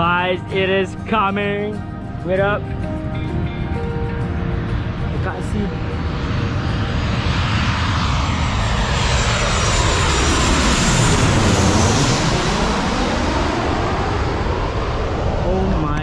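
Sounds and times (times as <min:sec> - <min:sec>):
airliner flying overhead: 0:00.0 - 0:16.0.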